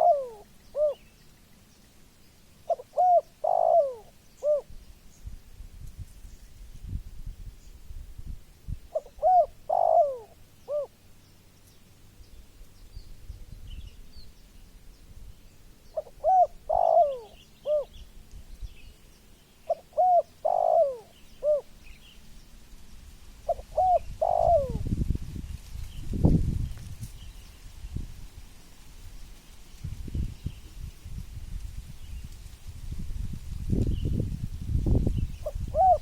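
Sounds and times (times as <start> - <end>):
dove cooing: 0.0 - 1.1, 2.6 - 4.7, 8.9 - 11.0, 15.9 - 18.0, 19.6 - 21.9, 23.4 - 24.9, 35.4 - 36.0.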